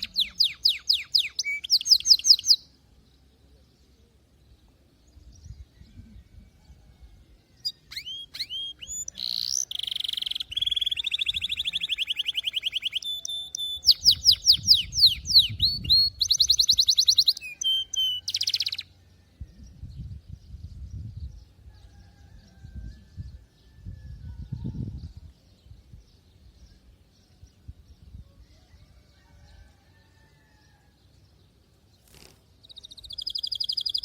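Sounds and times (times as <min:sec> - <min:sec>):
canary singing trills and whistles: 0:00.0 - 0:02.7, 0:07.6 - 0:18.9, 0:32.1 - 0:34.0.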